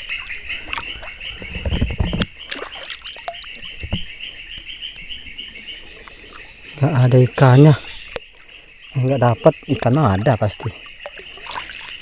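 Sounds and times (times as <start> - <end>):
frogs calling in chorus: 0.0 - 12.0
net splashing in water: 2.4 - 3.7, 11.4 - 12.0.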